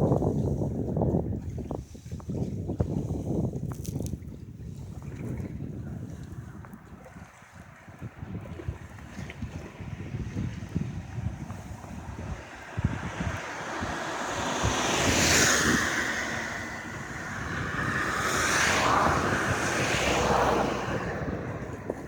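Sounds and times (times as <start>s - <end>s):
wind buffeting microphone: 0.0s - 22.0s
sea waves breaking on beach: 11.4s - 22.0s.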